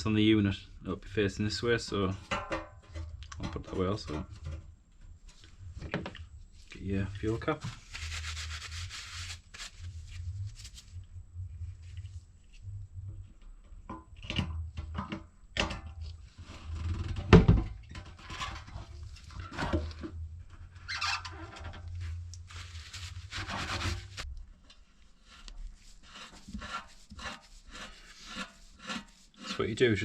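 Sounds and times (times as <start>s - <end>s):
low hum: 9.7s - 18.0s.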